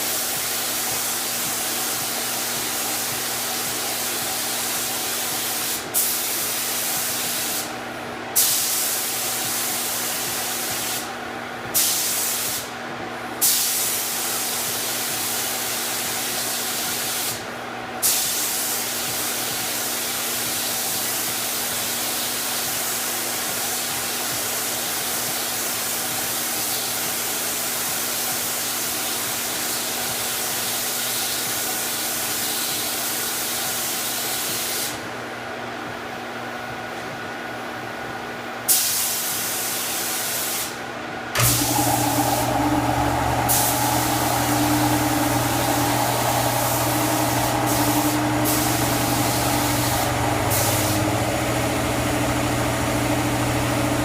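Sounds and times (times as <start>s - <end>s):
paint spray gun hissing: 41.4s - 53.8s.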